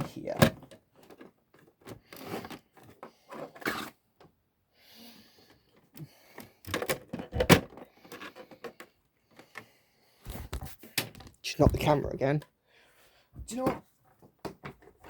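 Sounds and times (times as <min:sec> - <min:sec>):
plastic and metal parts handled: 0:00.0 - 0:04.3, 0:05.7 - 0:09.6.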